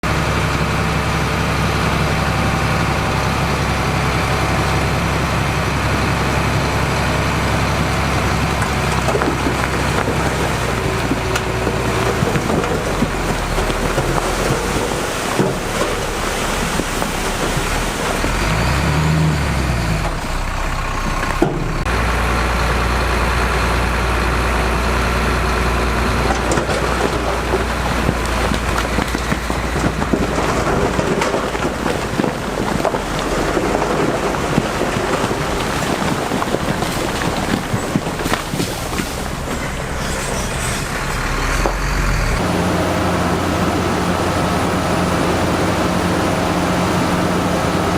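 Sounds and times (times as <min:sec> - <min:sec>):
heavy diesel machinery engines: 0:00.0 - 0:47.9
knocks and clanks: 0:07.8 - 0:18.9, 0:21.1 - 0:21.9, 0:26.2 - 0:41.0.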